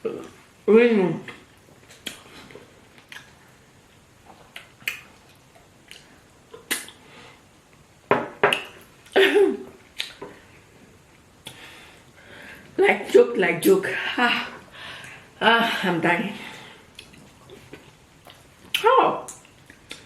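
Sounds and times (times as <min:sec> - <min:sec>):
wet mouth clicks and smacks: 0:01.3 - 0:03.4, 0:04.3 - 0:07.0, 0:08.5 - 0:08.9, 0:09.9 - 0:10.3, 0:16.9 - 0:20.0.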